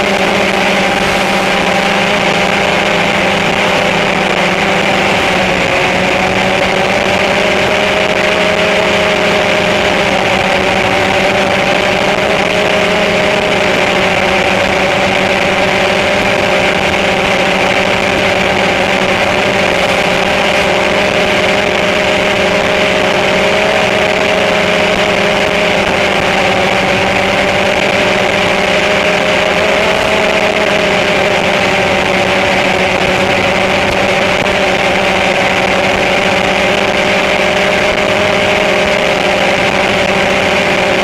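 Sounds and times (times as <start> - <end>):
drone propellers whining: 0.0 - 41.0.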